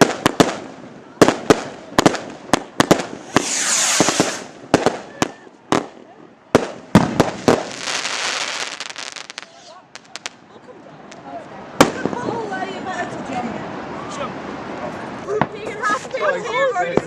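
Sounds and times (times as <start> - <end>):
fireworks bangs: 0.0 - 10.4, 11.8 - 12.4
fireworks hissing crackle: 1.4 - 6.0, 6.6 - 10.4.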